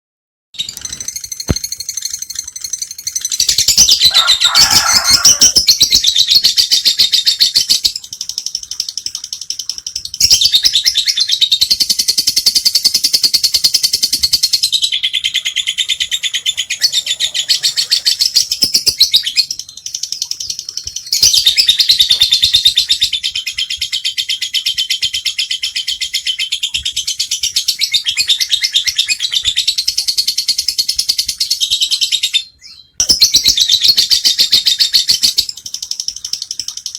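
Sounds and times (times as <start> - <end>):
lovebird shrill chirping chatter: 0.6 - 26.5.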